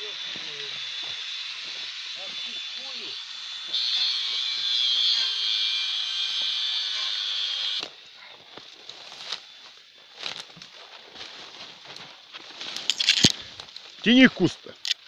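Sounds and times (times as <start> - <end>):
brush rustling and crackling: 8.4 - 14.9
twigs snapping: 10.2 - 14.0.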